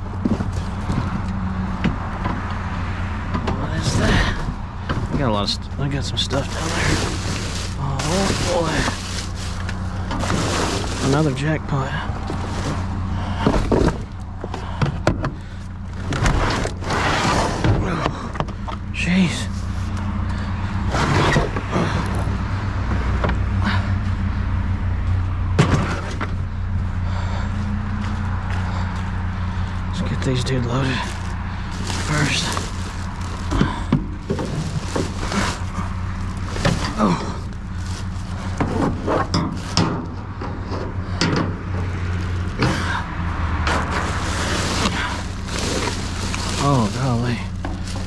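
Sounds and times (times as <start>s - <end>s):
truck engine idling: 0.0s - 48.0s
scrap knocking and rattling: 3.3s - 11.4s, 12.2s - 15.4s, 30.9s - 48.0s
scrap metal clattering: 5.9s - 11.5s.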